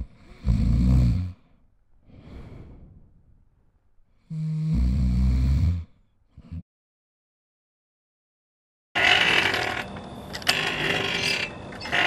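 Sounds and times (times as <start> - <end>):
person snoring: 0.0 - 1.5, 4.2 - 6.6
quiet breath: 0.0 - 4.6.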